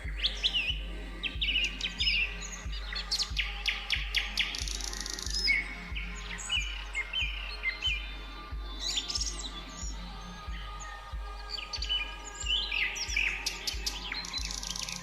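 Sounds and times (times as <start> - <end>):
soft background music: 0.0 - 15.0
songbirds chirping: 0.0 - 15.0.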